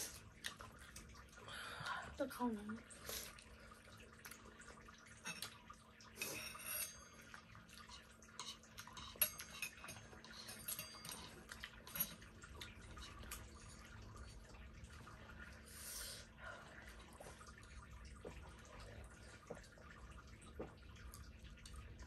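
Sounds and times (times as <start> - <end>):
cutlery clinking on plates: 8.4 - 12.3.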